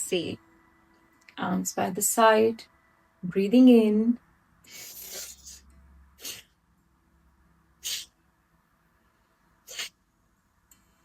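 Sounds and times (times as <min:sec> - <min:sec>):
forceful nasal exhalations: 0:04.7 - 0:05.6, 0:07.8 - 0:08.2, 0:09.6 - 0:10.0.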